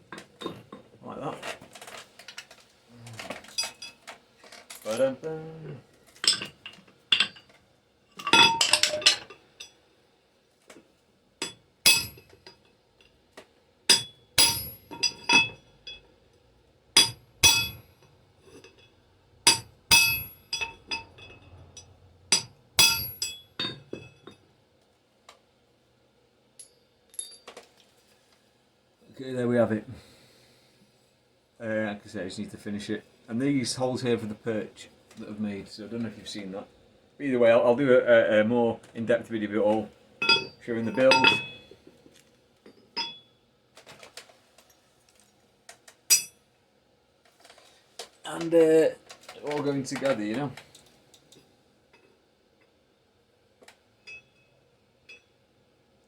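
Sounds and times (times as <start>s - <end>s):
small metal parts clinking: 3.2s - 5.2s, 6.1s - 7.6s, 8.2s - 9.8s, 26.6s - 27.8s, 40.2s - 41.7s.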